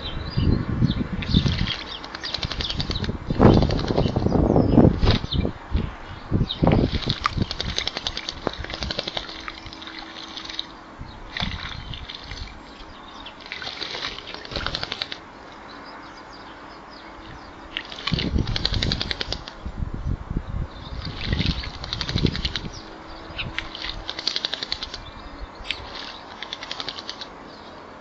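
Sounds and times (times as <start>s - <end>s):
bird splashing in water: 1.2s - 4.3s, 6.6s - 15.5s, 17.7s - 19.6s, 20.9s - 27.4s.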